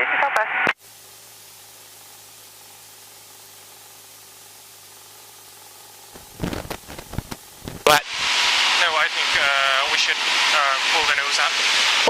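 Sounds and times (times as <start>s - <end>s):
radio crackling bursts: 6.2s - 8.0s
radio static hiss: 6.2s - 8.1s.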